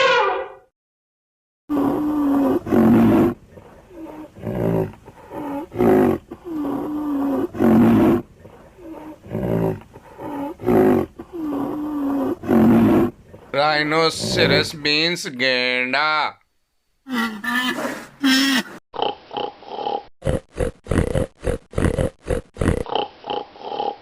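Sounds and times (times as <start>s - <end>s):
wild animal roaring calls: 1.7s - 13.5s, 14.1s - 14.7s.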